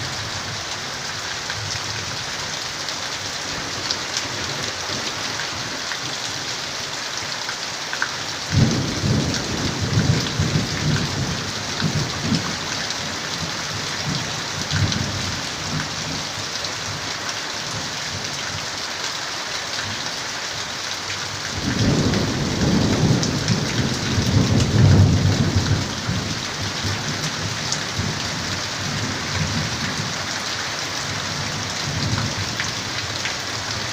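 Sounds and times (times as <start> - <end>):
heavy rain falling: 0.0 - 33.9
low rolling thunder: 8.5 - 15.8, 21.5 - 30.2.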